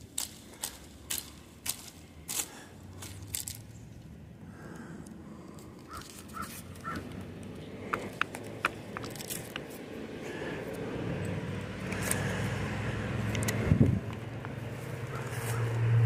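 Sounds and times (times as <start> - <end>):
bird calling: 5.8 - 8.3, 15.0 - 15.8
sharp clicks: 13.2 - 14.6.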